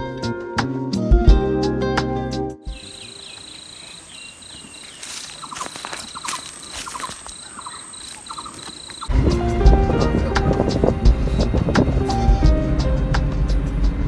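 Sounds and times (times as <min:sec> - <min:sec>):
insect pulsing trill: 0:02.7 - 0:09.2
high continuous insect whine: 0:02.7 - 0:13.5
brief rustles: 0:02.8 - 0:09.1.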